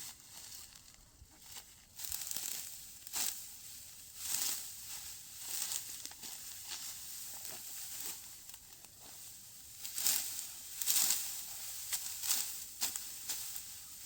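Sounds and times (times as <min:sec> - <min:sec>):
dry straw crunching and rustling: 0:00.0 - 0:14.0.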